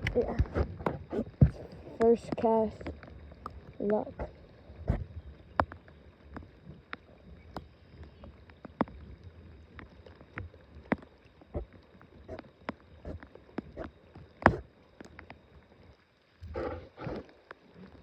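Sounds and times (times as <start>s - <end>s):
light taps and knocks in boat: 0.0s - 9.0s
low rumble of water: 0.0s - 18.0s
wind: 0.0s - 18.0s.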